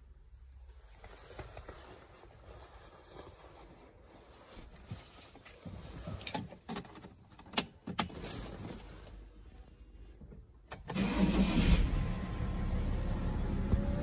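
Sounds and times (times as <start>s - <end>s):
diesel engine starting and idling: 10.8s - 14.0s.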